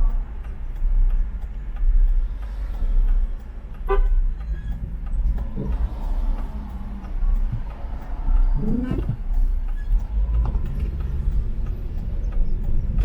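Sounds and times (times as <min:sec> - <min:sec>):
traffic and road noise rumble: 0:00.0 - 0:13.0
car horn toot: 0:03.8 - 0:04.3.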